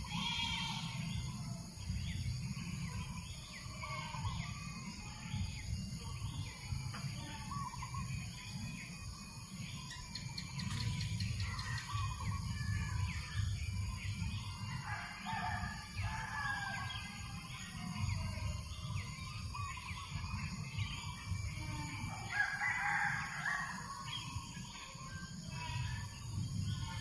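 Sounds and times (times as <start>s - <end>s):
rooster crowing: 14.8s - 17.3s, 22.0s - 24.0s.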